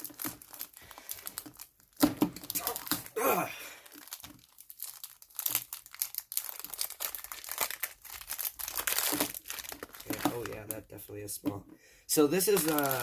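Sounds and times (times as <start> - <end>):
plastic wrapping crinkling and tearing: 0.0 - 11.1, 12.3 - 13.0
person grunting: 2.6 - 3.8.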